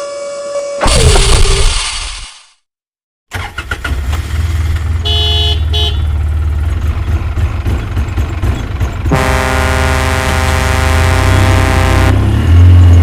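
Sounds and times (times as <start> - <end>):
truck engine rumbling: 3.3 - 13.0
truck horn blasts: 5.0 - 6.2, 9.1 - 12.6.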